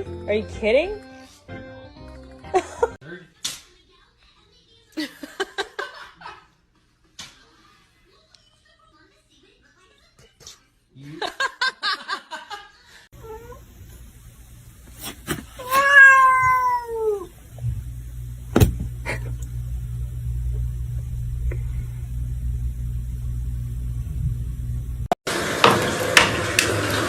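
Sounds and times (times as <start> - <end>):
cat meowing: 13.2 - 13.6, 15.6 - 17.4
low steady hum: 17.0 - 25.1.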